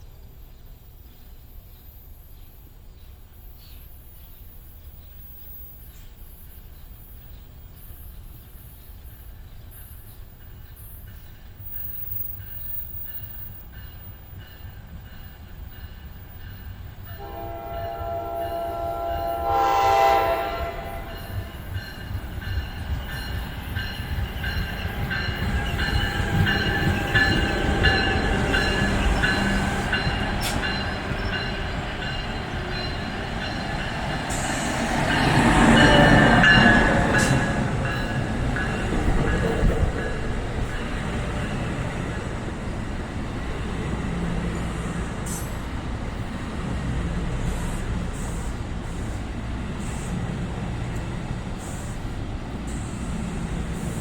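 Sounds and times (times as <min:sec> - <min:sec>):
train rumble and rail noise: 0:00.0 - 0:54.0
train horn chord: 0:17.1 - 0:21.8.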